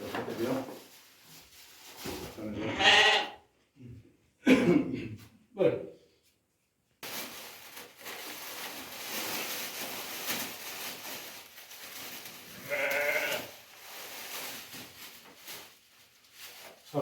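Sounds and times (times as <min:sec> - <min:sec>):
goat or sheep bleat: 0:02.6 - 0:03.4, 0:12.5 - 0:13.5.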